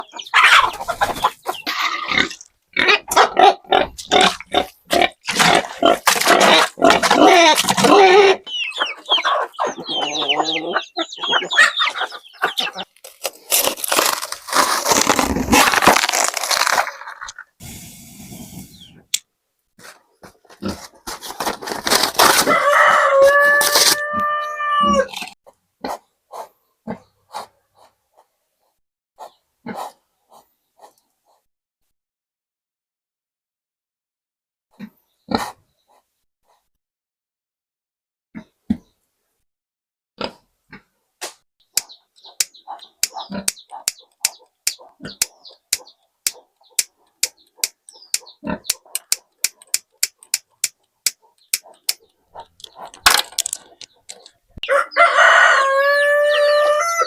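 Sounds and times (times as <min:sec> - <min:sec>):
chickens clucking: 0:00.0 - 0:13.3, 0:41.7 - 0:57.0
rooster crowing: 0:22.5 - 0:25.1, 0:54.6 - 0:57.0.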